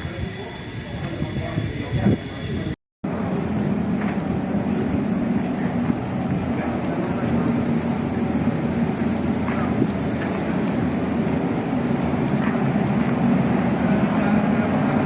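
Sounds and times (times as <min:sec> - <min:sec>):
machine running with low hum: 0:03.1 - 0:15.0.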